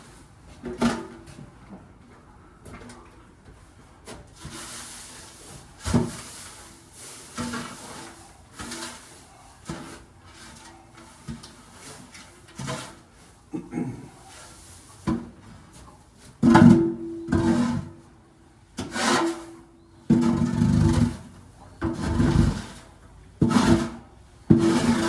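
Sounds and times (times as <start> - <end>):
scraping and knocking: 16.4 - 18.0, 20.1 - 25.0.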